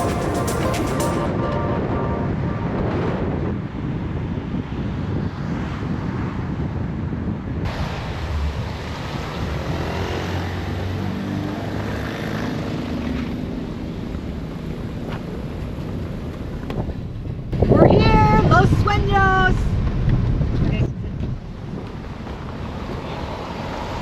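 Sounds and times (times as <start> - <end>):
wind noise: 0.0 - 11.2, 13.7 - 24.0
car engine and road rumble: 6.6 - 18.2, 19.1 - 24.0.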